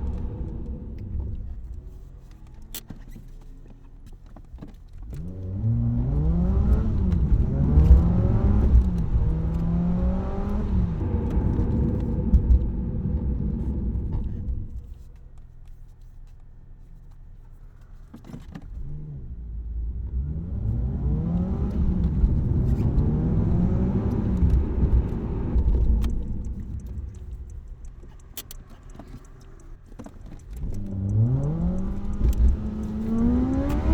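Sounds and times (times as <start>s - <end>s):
car exhaust accelerating through gears: 0.0s - 2.8s, 5.0s - 15.1s, 18.7s - 33.9s.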